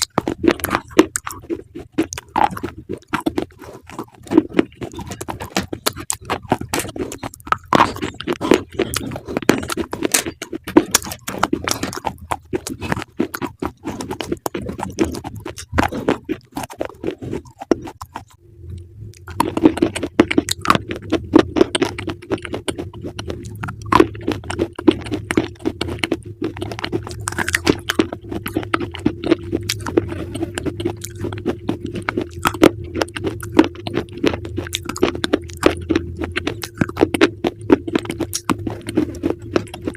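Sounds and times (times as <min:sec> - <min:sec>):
chewing crunchy food: 0:00.0 - 0:39.9
steady low drone: 0:18.0 - 0:39.9.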